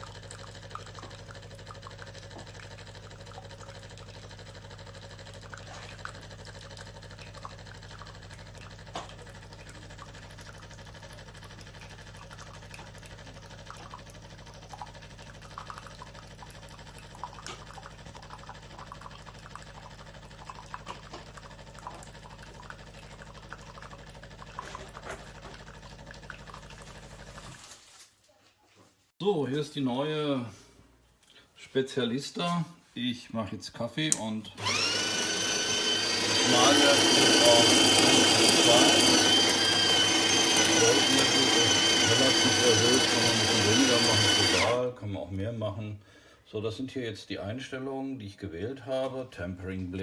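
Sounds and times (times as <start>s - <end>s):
espresso machine pump humming: 0.0s - 27.4s, 34.6s - 44.8s
small drips and ticks: 0.0s - 27.8s.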